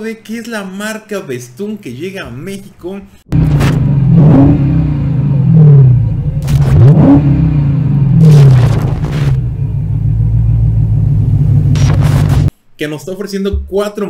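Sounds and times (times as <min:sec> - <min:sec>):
car engine revving: 0:03.3 - 0:12.5
steady low drone: 0:03.3 - 0:12.5.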